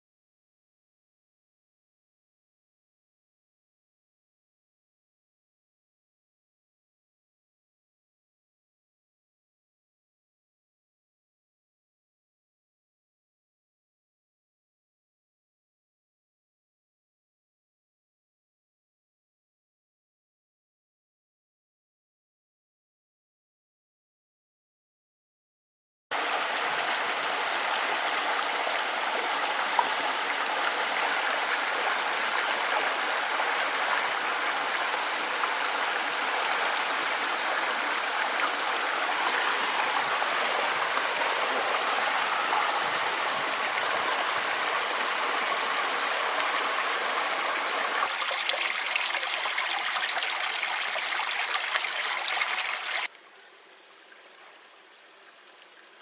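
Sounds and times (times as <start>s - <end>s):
creek water rushing: 26.1s - 56.0s.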